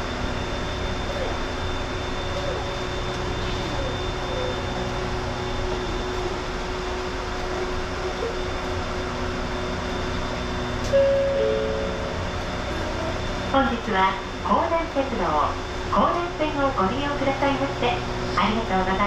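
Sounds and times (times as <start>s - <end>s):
high whine: 0.0s - 19.0s
train air conditioning hum: 0.0s - 19.0s
low steady tone: 9.8s - 15.2s.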